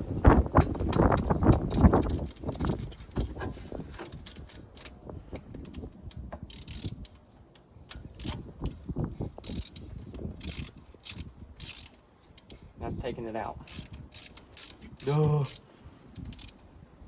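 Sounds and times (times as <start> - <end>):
ratchet wrench clicking: 5.6 - 7.2, 7.9 - 12.7, 13.6 - 16.6.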